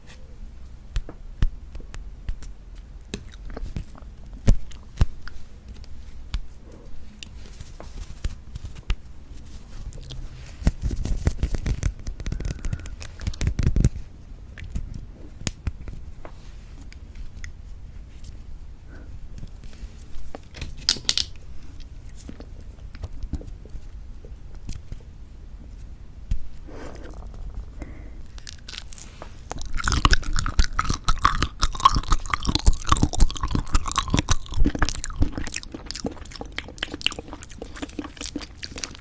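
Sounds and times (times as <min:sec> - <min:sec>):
crackly chewing: 0:01.8 - 0:16.2, 0:19.4 - 0:25.1, 0:26.5 - 0:39.0
mouth clicks and noises: 0:09.8 - 0:14.0, 0:26.3 - 0:39.0.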